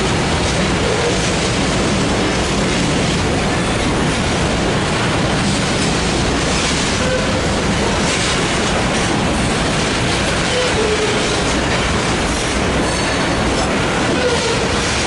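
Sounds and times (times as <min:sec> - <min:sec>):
freight train rumbling on rails: 0:00.0 - 0:15.0
faint train squeal: 0:10.4 - 0:11.5, 0:12.8 - 0:13.4.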